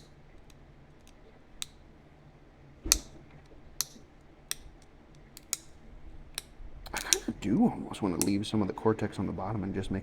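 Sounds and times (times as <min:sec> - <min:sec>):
stone flakes clicking and snapping: 0:02.9 - 0:07.4.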